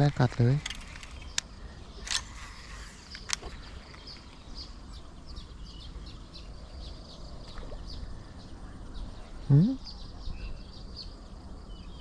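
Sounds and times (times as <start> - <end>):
small birds chirping: 0.0 - 12.0
sharp click: 0.4 - 2.4.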